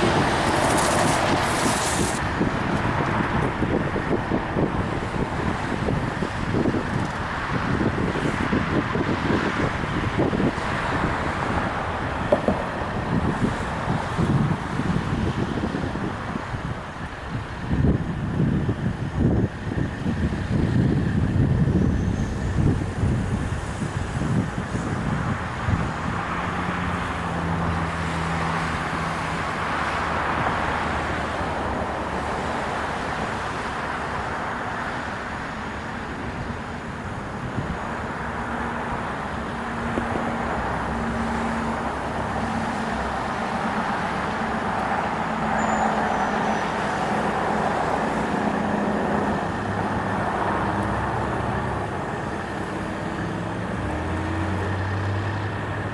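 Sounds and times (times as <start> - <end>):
low engine hum: 0.0 - 55.9
road traffic rushing past: 0.0 - 55.9.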